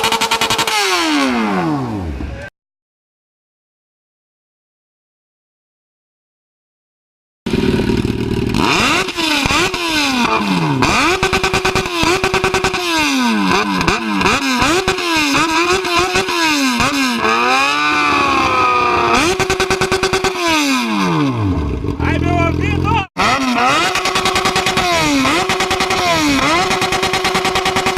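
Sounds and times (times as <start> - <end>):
motorcycle engine revving: 0.0 - 2.2, 7.5 - 27.9.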